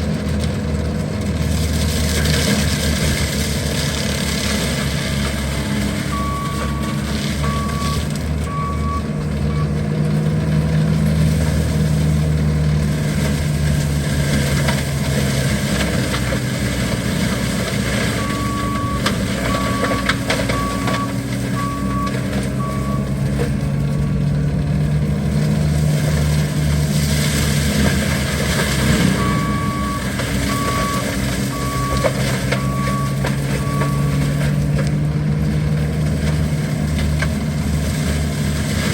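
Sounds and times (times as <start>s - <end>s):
skid steer engine running: 0.0s - 38.9s
backup alarm beeps: 6.1s - 9.7s, 18.2s - 23.1s, 29.1s - 34.1s.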